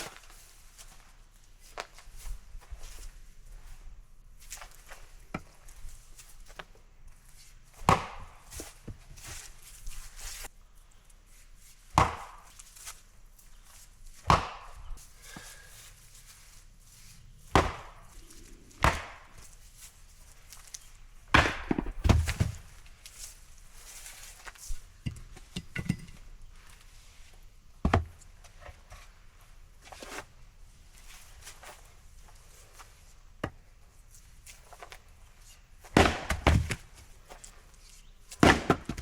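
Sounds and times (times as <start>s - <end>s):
axe chopping wood: 7.8s - 8.6s, 11.9s - 12.6s, 14.2s - 14.8s, 17.5s - 18.2s, 18.8s - 19.5s, 21.3s - 22.8s, 35.8s - 36.9s, 38.4s - 39.0s.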